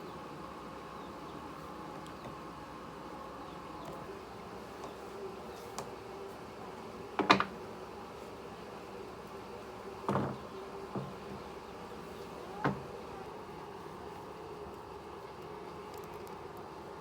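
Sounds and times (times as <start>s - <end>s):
faint steady hum: 0.0s - 17.0s
objects knocking and clattering: 7.2s - 7.6s, 10.1s - 10.4s.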